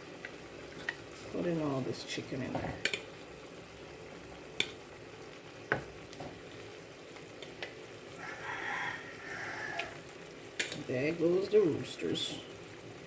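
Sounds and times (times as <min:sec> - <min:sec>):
chicken sizzling in a pot: 0:00.0 - 0:13.0
rooster crowing faintly: 0:08.2 - 0:10.0.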